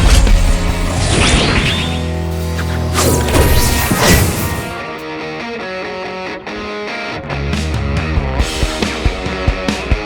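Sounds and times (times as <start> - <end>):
action soundtrack music: 0.0 - 5.3.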